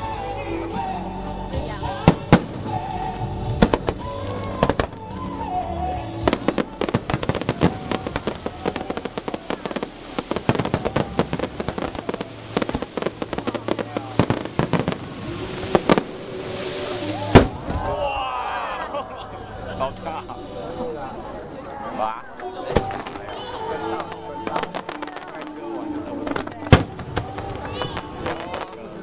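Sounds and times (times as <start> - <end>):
music: 0.0 - 18.0, 19.2 - 29.0
fireworks crackling pops: 1.9 - 5.2, 6.2 - 18.1, 22.7 - 29.0
fireworks bangs: 1.9 - 5.3, 6.2 - 18.2, 22.7 - 29.0.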